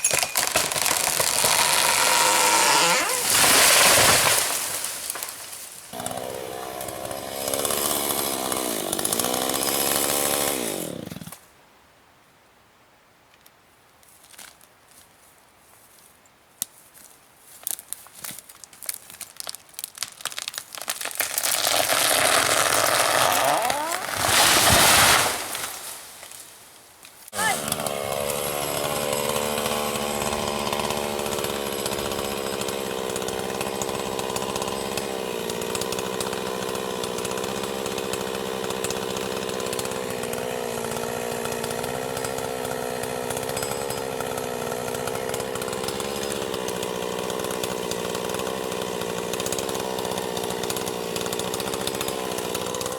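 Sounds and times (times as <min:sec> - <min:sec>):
cracks and crackling: 0:00.0 - 0:02.2, 0:17.6 - 0:24.4
chainsaw running: 0:00.0 - 0:11.4, 0:21.2 - 0:26.0, 0:27.3 - 0:52.9.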